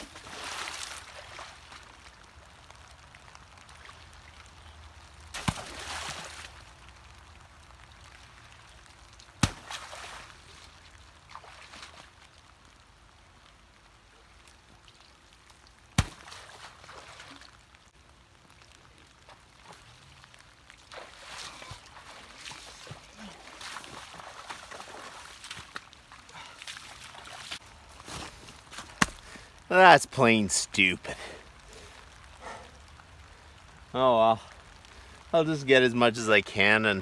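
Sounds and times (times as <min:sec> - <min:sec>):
water splashing and dripping: 0:00.0 - 0:29.8, 0:30.8 - 0:35.4
sharp knocks of logs: 0:09.4 - 0:09.9, 0:16.0 - 0:16.4, 0:28.1 - 0:29.4.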